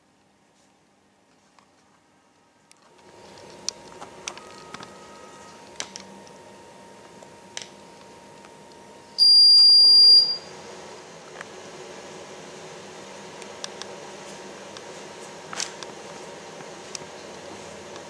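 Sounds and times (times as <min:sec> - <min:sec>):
long high electronic beep: 0:09.2 - 0:10.5.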